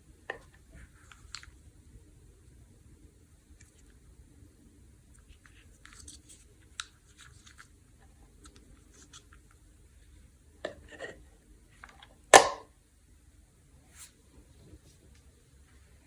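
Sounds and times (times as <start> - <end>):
candy packaging crinkling: 5.5 - 9.5.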